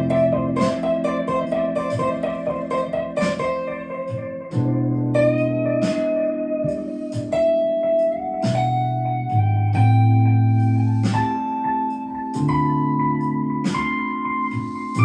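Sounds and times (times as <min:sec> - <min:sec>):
clean electric guitar lead: 0:00.0 - 0:15.0
held bass notes: 0:00.0 - 0:15.0
keyboard chords: 0:00.0 - 0:15.0.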